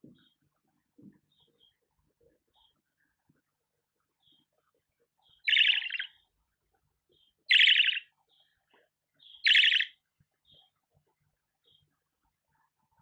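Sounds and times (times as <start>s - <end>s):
budgerigar chattering calls: 5.5s - 6.1s, 7.5s - 8.1s, 9.4s - 9.9s.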